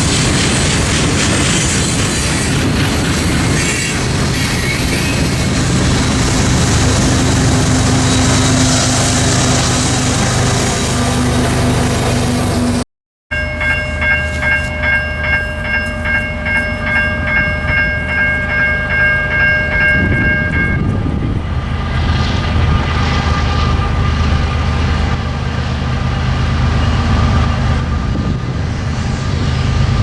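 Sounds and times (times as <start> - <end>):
freight train rumbling: 0.0 - 30.0
bell ringing fast: 13.3 - 20.8.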